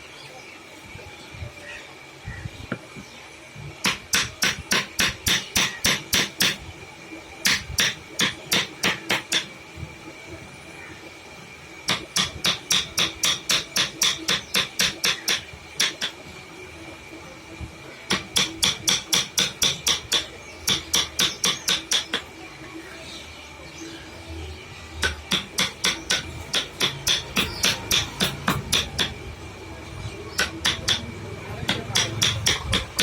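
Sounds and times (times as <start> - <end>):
hammer tapping: 3.8 - 6.6, 7.4 - 9.5, 11.9 - 16.2, 18.1 - 22.3, 25.0 - 29.2, 30.4 - 33.0.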